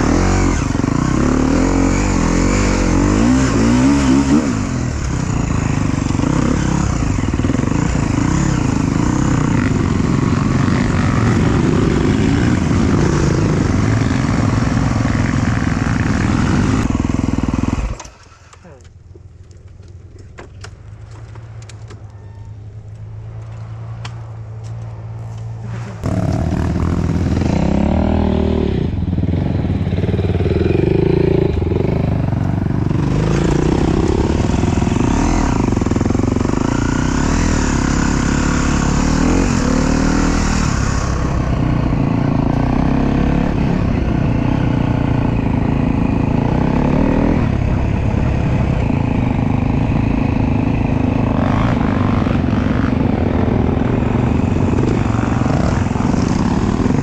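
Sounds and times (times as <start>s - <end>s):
dirt bike engine revving: 0.0s - 18.6s, 25.6s - 57.0s.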